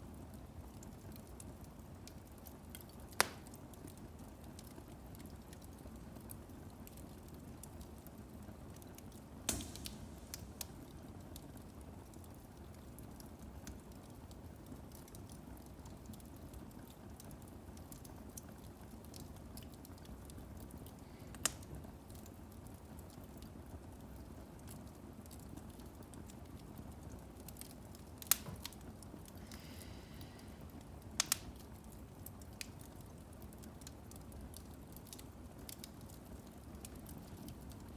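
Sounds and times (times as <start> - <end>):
wood crackling and popping: 0.2 - 37.9
fire flames rushing: 9.5 - 11.6.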